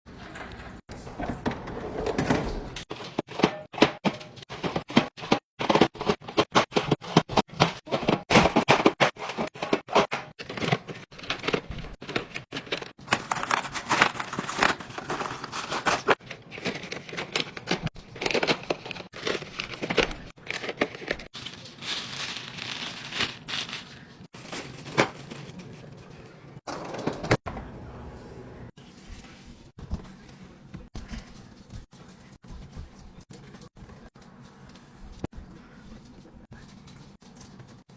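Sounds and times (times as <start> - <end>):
packaging crinkling and tearing: 10.4 - 25.9.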